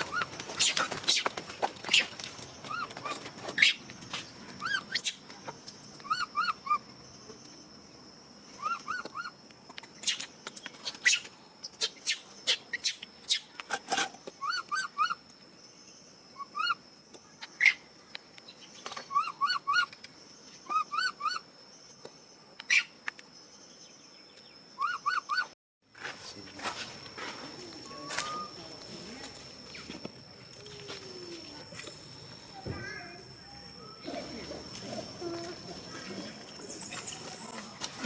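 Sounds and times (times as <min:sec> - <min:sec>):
baby monkey squealing: 0:19.1 - 0:19.9, 0:20.7 - 0:21.4.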